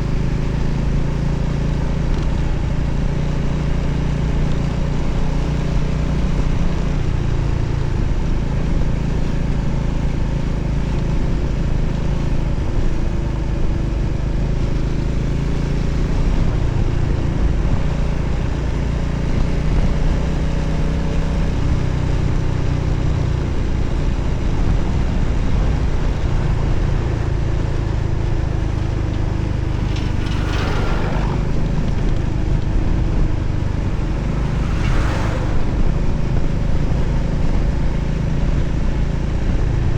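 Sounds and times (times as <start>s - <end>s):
motorcycle engine running: 0.0s - 39.9s
wind noise: 11.2s - 39.9s.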